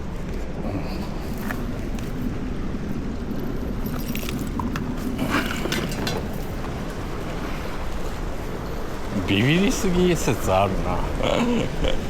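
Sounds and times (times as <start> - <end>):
boat engine hum: 0.0 - 12.0
wind and water noise: 0.0 - 12.0
knocks and rattles: 3.8 - 7.0.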